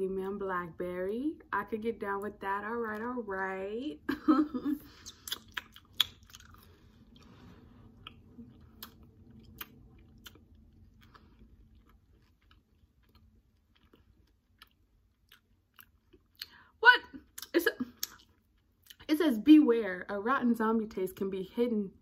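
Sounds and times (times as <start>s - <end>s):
person chewing candy: 4.9s - 19.0s.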